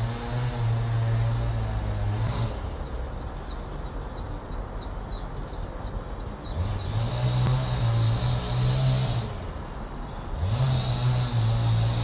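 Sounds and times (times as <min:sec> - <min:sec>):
small bird chirping: 0:00.0 - 0:07.5
vehicle engine hum: 0:06.4 - 0:12.0.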